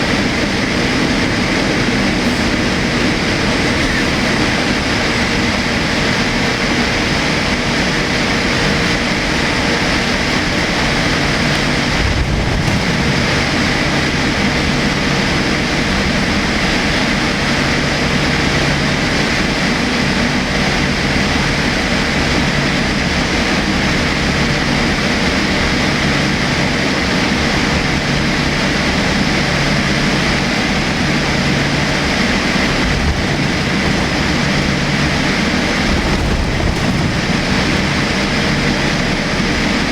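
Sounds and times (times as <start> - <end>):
engine and airflow rush: 0.0 - 39.9
low bump: 10.2 - 15.2, 32.8 - 38.8.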